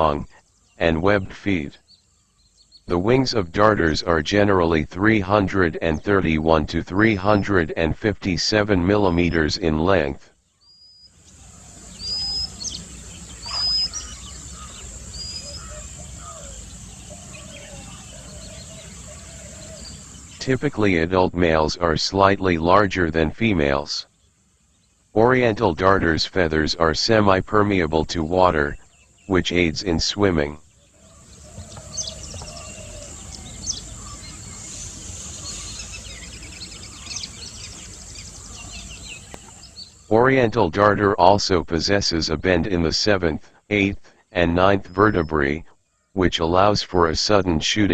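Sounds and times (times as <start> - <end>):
soft bird chirps: 0.0 - 7.6, 8.8 - 21.1, 22.8 - 40.1
rising whistled bird call: 10.6 - 20.4, 30.8 - 40.1
steady high hiss: 11.1 - 40.2.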